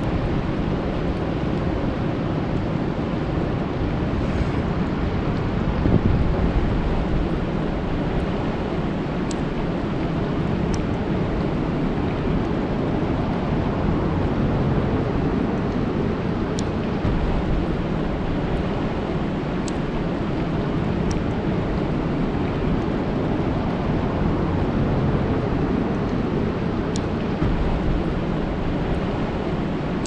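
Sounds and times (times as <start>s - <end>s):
rain falling on lake: 5.2s - 30.0s
faint high ticks: 19.6s - 19.8s.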